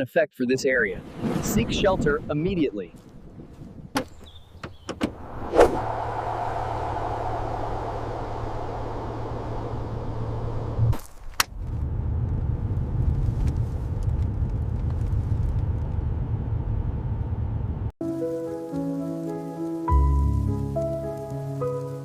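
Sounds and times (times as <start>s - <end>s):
steady low rumble: 0.9s - 17.9s
music with sustained notes: 18.0s - 22.0s.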